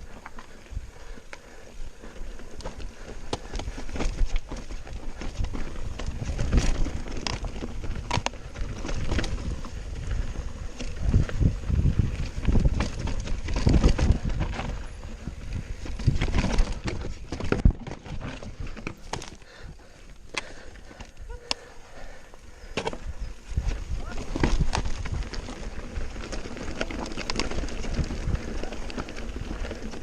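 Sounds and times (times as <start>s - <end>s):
mountain bike rattling: 0.0s - 30.0s
wind on microphone: 5.2s - 18.8s, 23.0s - 26.4s, 27.4s - 30.0s.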